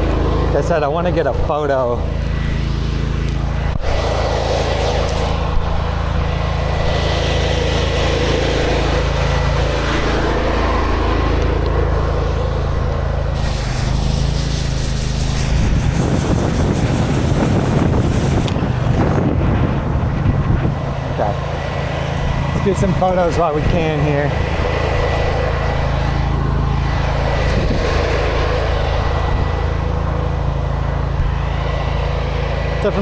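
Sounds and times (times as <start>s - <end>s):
engine running: 0.0s - 33.0s
hiss: 13.3s - 18.6s.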